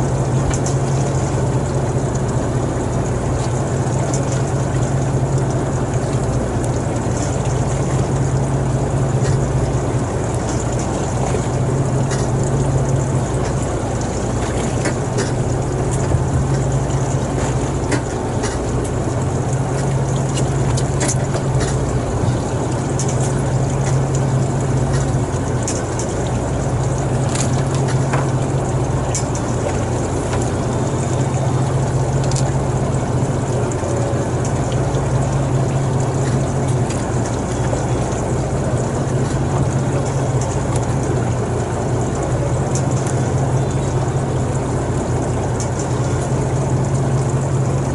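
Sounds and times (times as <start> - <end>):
boat engine humming: 0.0 - 47.9
water wash: 0.0 - 47.9
faint clicks and knocks: 13.4 - 24.2, 24.9 - 31.4.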